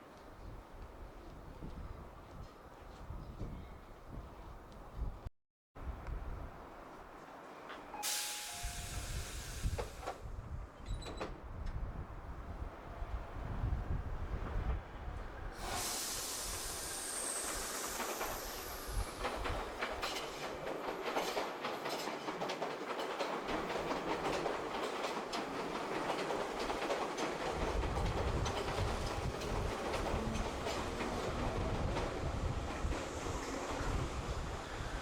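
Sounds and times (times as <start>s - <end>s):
train rushing hiss: 7.9s - 10.2s, 15.6s - 21.7s, 25.5s - 35.0s
wheels clicking over rail joints: 19.2s - 32.1s.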